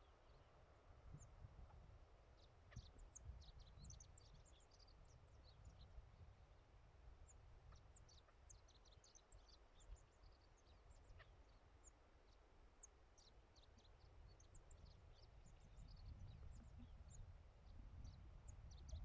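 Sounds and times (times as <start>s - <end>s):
small birds chirping: 2.4s - 6.6s, 7.2s - 19.0s
low wind rumble: 14.2s - 19.0s.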